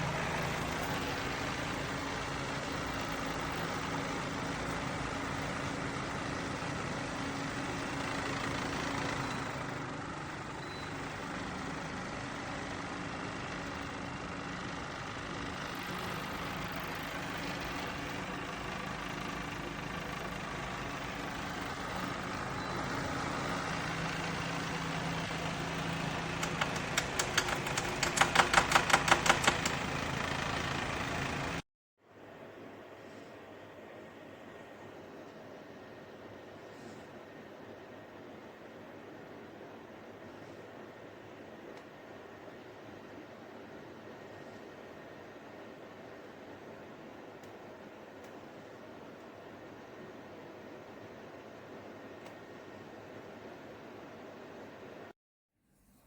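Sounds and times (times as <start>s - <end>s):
air cooler fan humming: 0.0s - 31.6s
sharp clicks: 26.2s - 29.9s.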